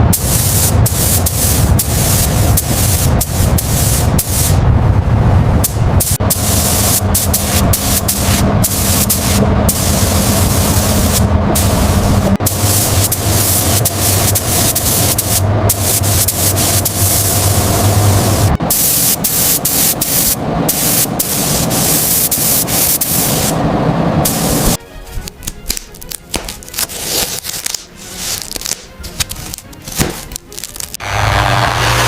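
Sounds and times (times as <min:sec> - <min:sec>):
loud hissing spray: 0:00.0 - 0:04.6, 0:05.6 - 0:23.6, 0:24.2 - 0:24.8
background music: 0:24.8 - 0:32.0.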